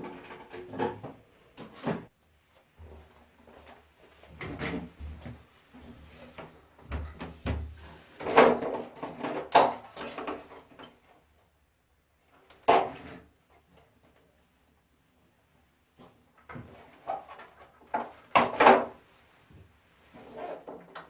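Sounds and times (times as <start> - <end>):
clatter of parts being handled: 8.2 - 11.0.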